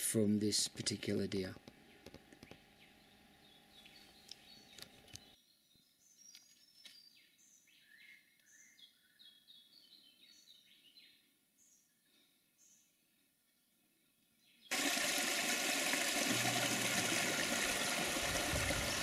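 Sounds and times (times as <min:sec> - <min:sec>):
faint bird chirps: 0:02.8 - 0:14.7
low hum: 0:16.1 - 0:19.0.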